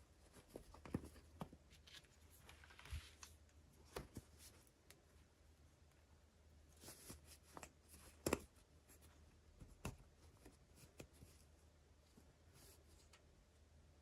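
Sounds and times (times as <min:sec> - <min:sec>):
hands handling small toys: 0:00.1 - 0:05.1.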